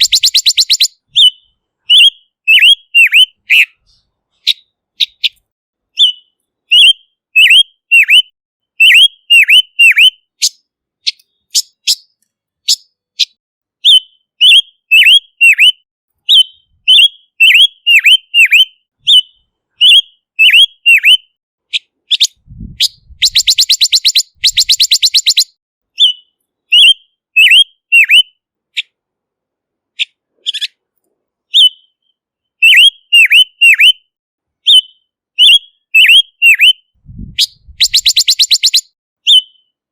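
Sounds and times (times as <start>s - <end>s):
bird rattling trill: 0.0s - 0.9s, 22.9s - 25.5s, 37.4s - 38.8s
bird whistled calls: 0.0s - 5.4s, 6.0s - 28.9s, 31.5s - 39.8s.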